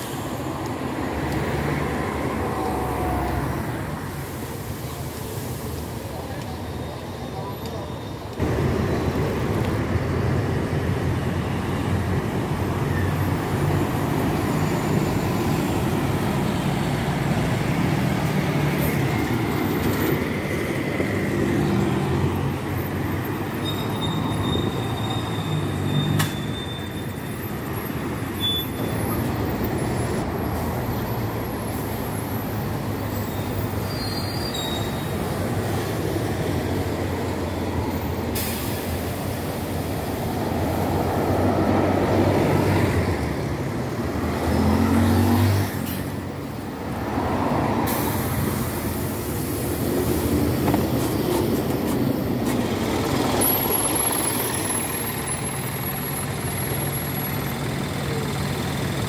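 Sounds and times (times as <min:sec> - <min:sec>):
diesel buses passing: 0:00.0 - 0:59.0
road noise: 0:00.0 - 0:59.0
short high squeal: 0:23.5 - 0:27.7, 0:28.3 - 0:29.6, 0:33.1 - 0:35.3.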